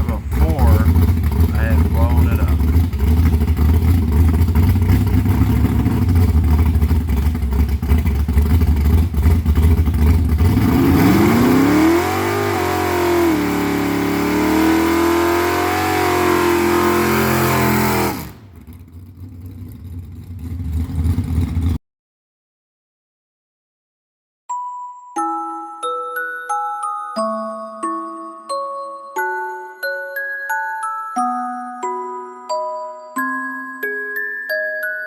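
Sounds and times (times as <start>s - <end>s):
vee eight engine rumbling: 0.0s - 21.8s.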